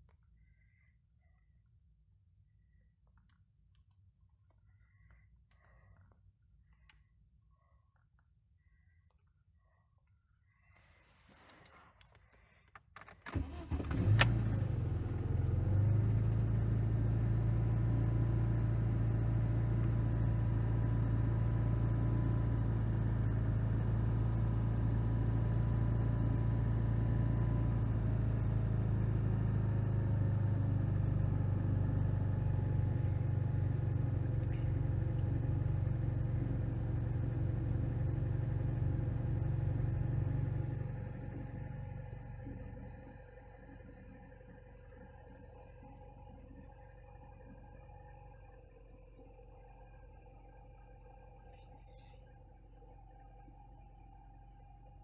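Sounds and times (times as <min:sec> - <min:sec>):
car engine starting and idling: 0:13.0 - 0:48.3.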